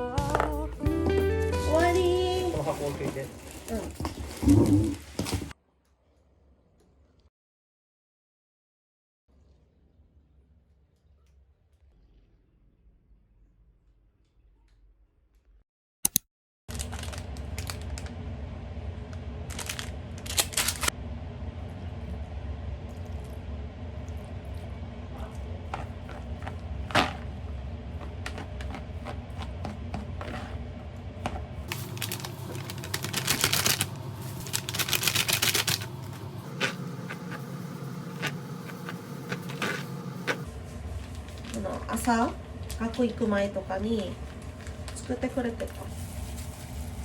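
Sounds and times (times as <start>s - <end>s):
steady low hum: 16.8s - 47.0s.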